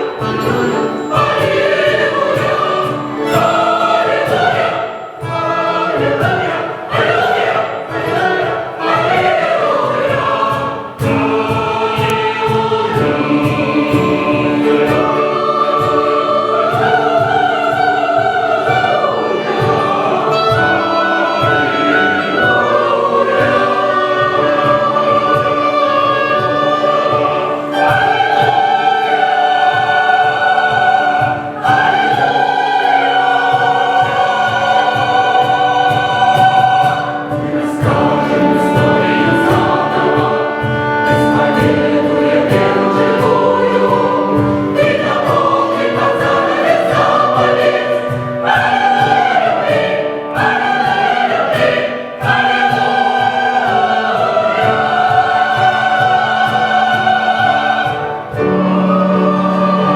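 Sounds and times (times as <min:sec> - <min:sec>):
sharp rhythmic taps: 0:00.0 - 0:19.0
choir singing held chords: 0:00.0 - 0:59.9.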